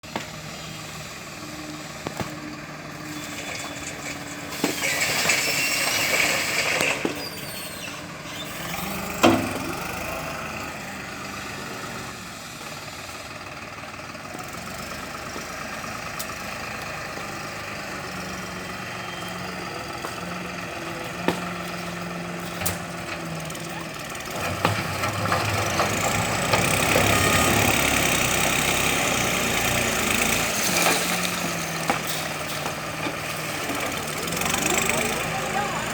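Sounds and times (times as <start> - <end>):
tractor diesel engine revving: 0.0 - 35.9.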